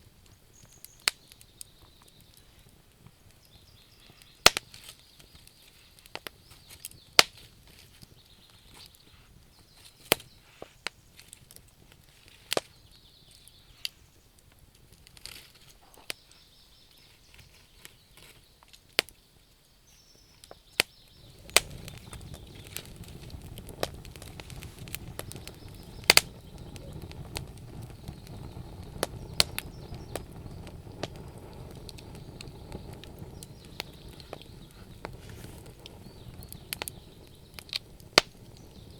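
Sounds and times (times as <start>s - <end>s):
bonfire crackling and popping: 0.0s - 38.9s
low rumble of flames: 20.9s - 38.9s.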